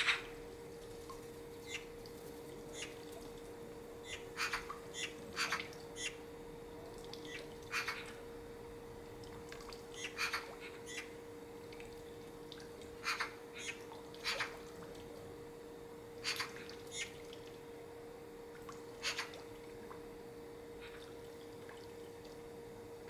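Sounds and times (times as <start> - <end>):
faint steady hum: 0.0 - 23.0
short bird calls: 7.2 - 8.2, 13.0 - 14.6, 16.2 - 17.2, 19.0 - 19.4.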